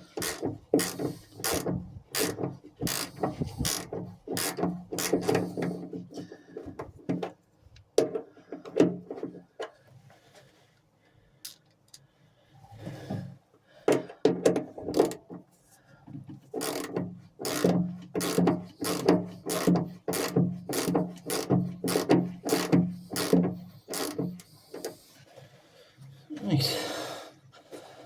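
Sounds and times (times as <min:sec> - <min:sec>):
socket ratchet clicking: 0:00.2 - 0:05.4, 0:16.6 - 0:25.0.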